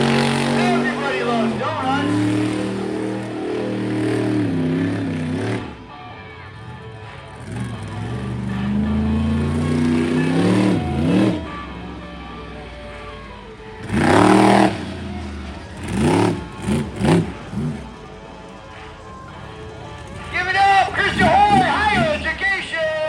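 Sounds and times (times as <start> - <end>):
monster truck engine revving: 0.0 - 23.0.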